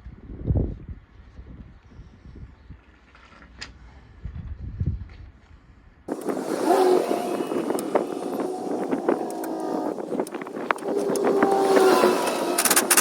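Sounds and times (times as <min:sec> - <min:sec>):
power tool whining on steel: 0:06.1 - 0:13.0
sharp clicks: 0:06.1 - 0:13.0.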